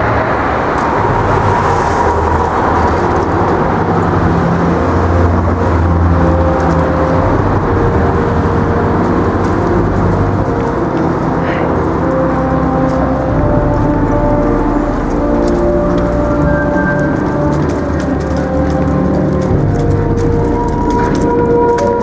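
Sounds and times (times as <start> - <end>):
car engines rumbling: 0.0 - 22.0
tyre noise: 0.0 - 22.0.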